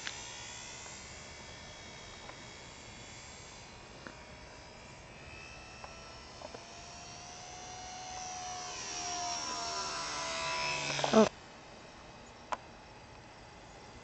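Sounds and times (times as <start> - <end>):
model plane motor whining: 0.0 - 11.3.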